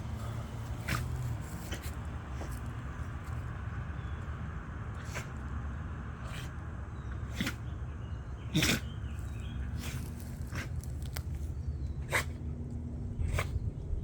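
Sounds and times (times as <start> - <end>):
dog sneezing: 7.3 - 7.6, 8.5 - 8.9, 12.1 - 12.4.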